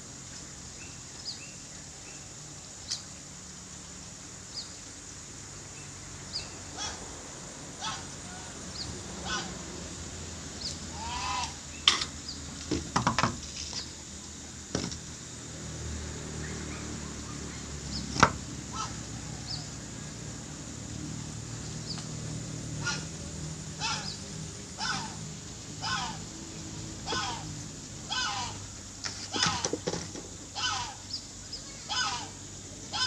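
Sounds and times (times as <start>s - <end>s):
birds honking calls: 7.8s - 9.6s, 10.6s - 12.4s, 16.5s - 19.7s, 22.7s - 33.0s.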